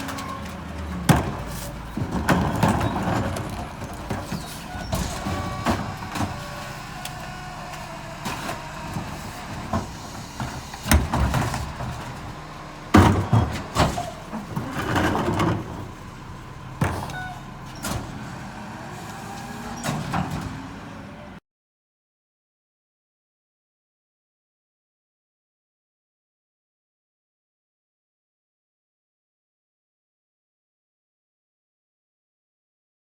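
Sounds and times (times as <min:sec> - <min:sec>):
bangs and clatter: 0:00.0 - 0:07.3, 0:08.2 - 0:16.1
garbage truck engine hum: 0:00.0 - 0:21.4.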